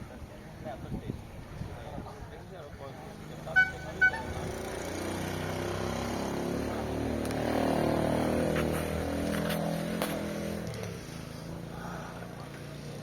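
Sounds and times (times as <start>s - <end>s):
vehicle engine passing by: 3.4s - 13.0s
short horn beep: 3.6s - 4.4s.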